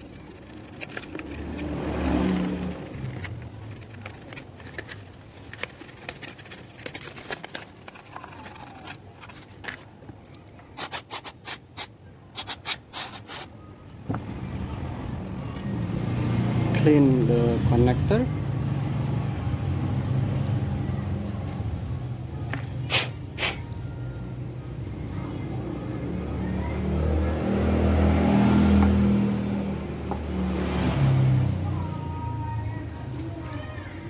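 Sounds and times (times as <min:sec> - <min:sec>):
clicks and scrapes from handling: 0:00.0 - 0:13.5.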